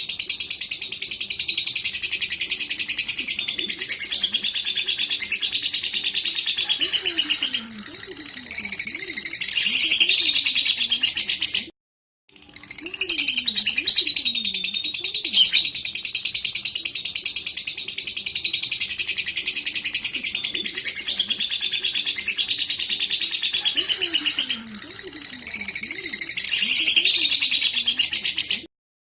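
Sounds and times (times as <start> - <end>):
lovebird chattering trill: 12.7 - 28.6.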